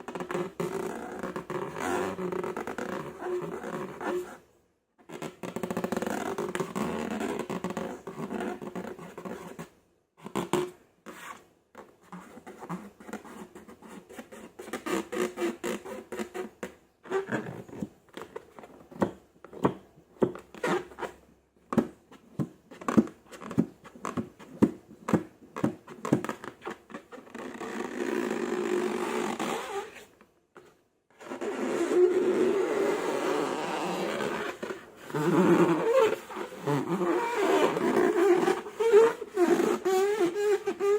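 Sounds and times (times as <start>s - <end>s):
air pockets popping: 21.7s - 30.1s, 31.3s - 40.9s.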